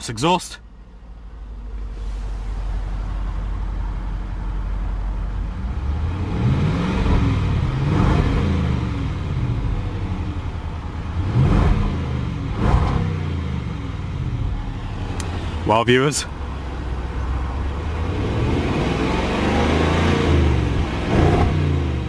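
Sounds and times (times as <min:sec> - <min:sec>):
car engine idling and revving: 0:00.0 - 0:22.0.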